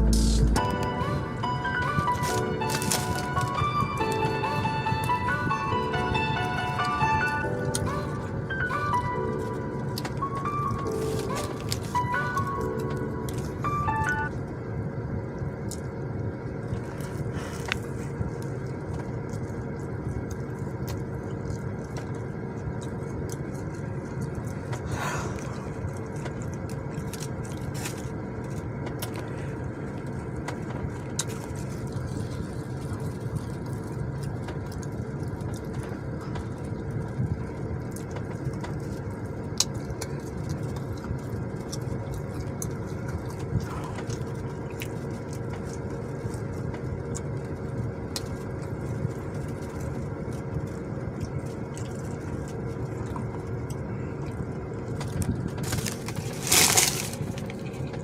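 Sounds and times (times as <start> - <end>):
car engine humming: 0.0 - 26.4
person chewing food: 16.7 - 58.0.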